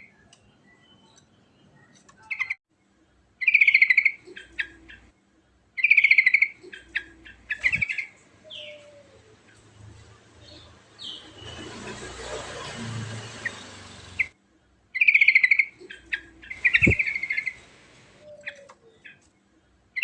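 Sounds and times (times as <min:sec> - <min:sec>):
bird chattering trills: 0:05.8 - 0:09.0, 0:15.0 - 0:17.7.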